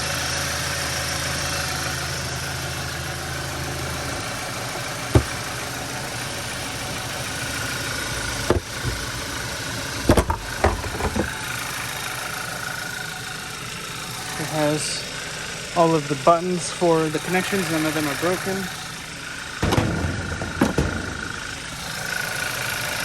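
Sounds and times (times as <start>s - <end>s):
car engine idling: 0.0s - 23.0s
sharp knocks and clicks: 5.1s - 5.5s, 8.3s - 9.3s, 10.0s - 11.3s, 19.6s - 22.1s.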